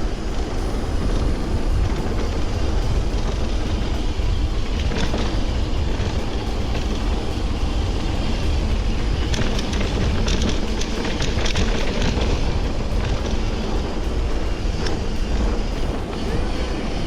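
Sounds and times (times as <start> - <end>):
bicycle road noise: 0.0 - 17.0
wind on microphone: 0.0 - 17.0.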